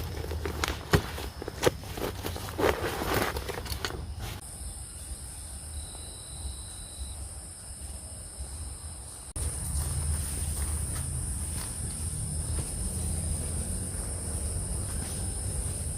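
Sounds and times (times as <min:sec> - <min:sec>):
footsteps on forest floor: 0:00.0 - 0:04.4, 0:09.4 - 0:15.9
high-pitched insect drone: 0:04.4 - 0:15.9.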